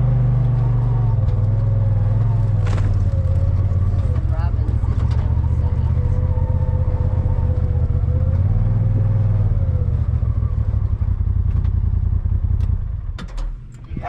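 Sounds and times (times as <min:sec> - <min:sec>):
vehicle engine and road rumble: 0:00.0 - 0:14.0.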